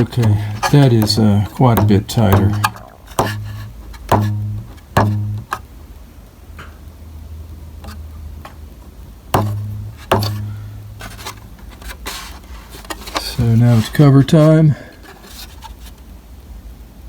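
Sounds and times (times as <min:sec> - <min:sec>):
rubber belt twanging: 0:00.0 - 0:05.6, 0:09.4 - 0:11.4.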